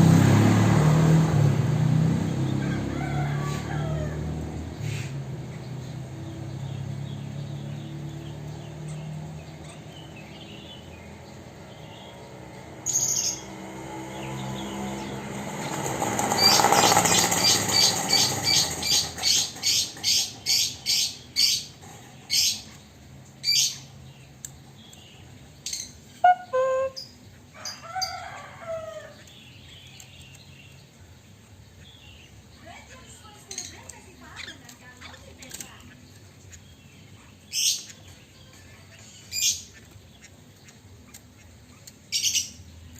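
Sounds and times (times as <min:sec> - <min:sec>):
bird calling sharp high notes: 0:26.1 - 0:27.2.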